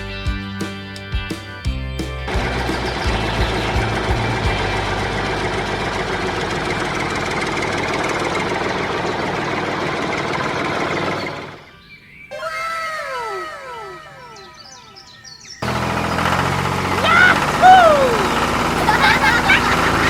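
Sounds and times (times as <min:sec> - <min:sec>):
small engine running roughly: 0:02.3 - 0:11.6, 0:15.6 - 0:20.0.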